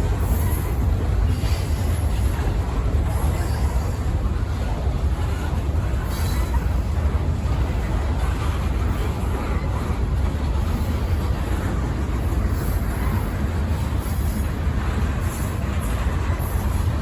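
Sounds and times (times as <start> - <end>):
freight train rumbling on rails: 0.0 - 17.0.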